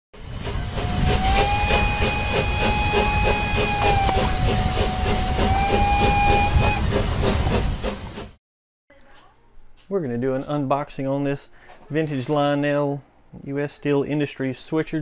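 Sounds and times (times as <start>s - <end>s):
train rumbling and chugging: 0.2s - 8.4s
train whistle blowing: 0.8s - 6.8s.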